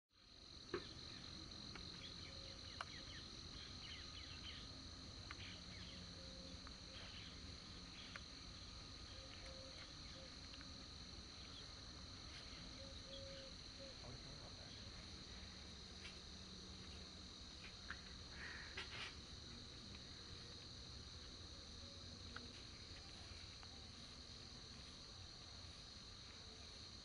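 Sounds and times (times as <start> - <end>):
insects humming and chirping: 0.2 - 27.0.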